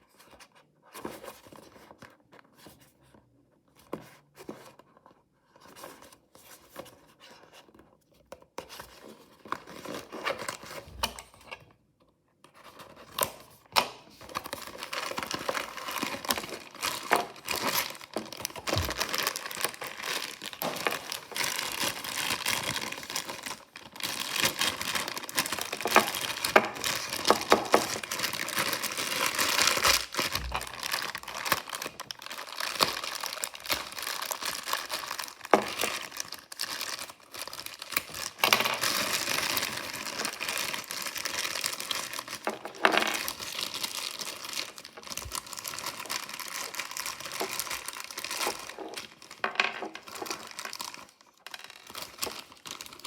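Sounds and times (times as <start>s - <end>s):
packaging wrapper crinkling: 13.0s - 53.0s.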